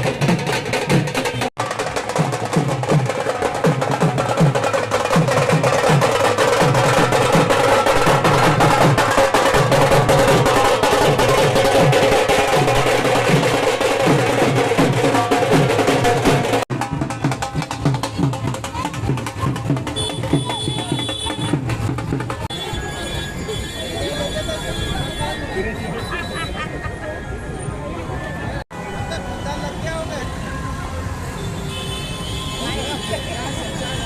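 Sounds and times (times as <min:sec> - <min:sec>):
fast dense drumming: 0:00.0 - 0:22.5.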